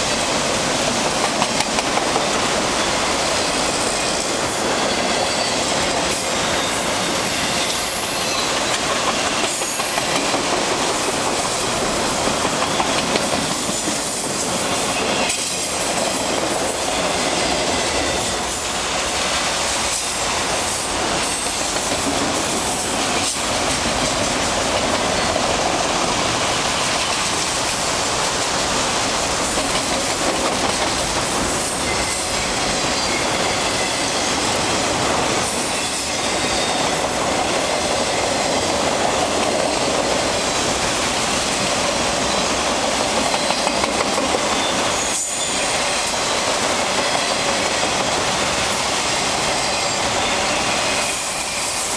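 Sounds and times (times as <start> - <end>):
steel train wheels on rail: 0.0 - 51.9.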